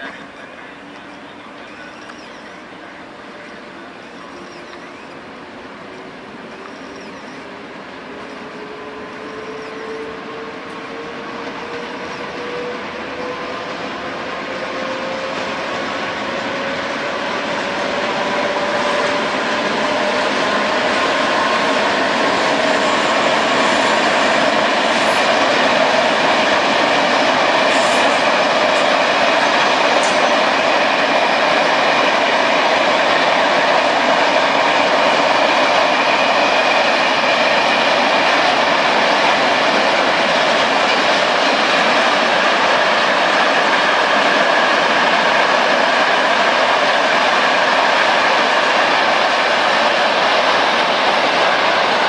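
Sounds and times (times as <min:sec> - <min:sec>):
train wheels rushing on rail: 0:00.0 - 0:52.0.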